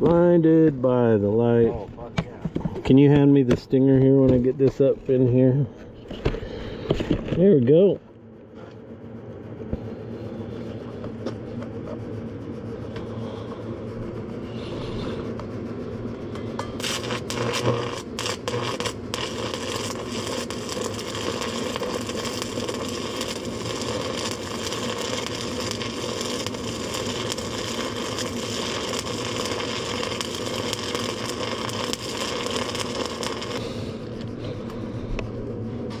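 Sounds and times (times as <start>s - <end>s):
welding arc crackling: 16.6s - 33.9s.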